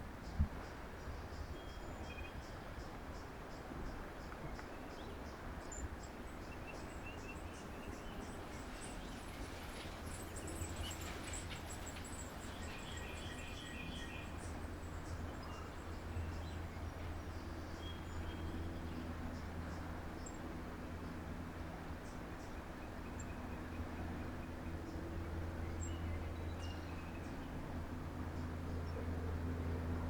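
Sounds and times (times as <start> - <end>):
small birds chirping: 4.2 - 19.1
low background rumble: 6.3 - 30.0.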